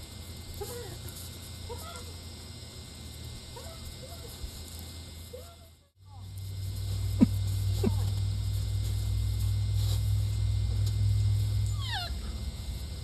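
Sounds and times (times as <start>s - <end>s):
puppy yipping: 11.7s - 12.2s
puppy whining: 11.7s - 12.4s.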